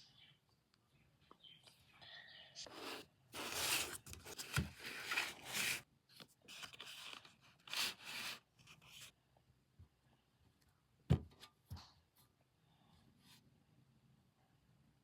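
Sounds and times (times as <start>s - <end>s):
packaging rustling and tearing: 3.4s - 5.8s
soft thump: 11.1s - 11.3s.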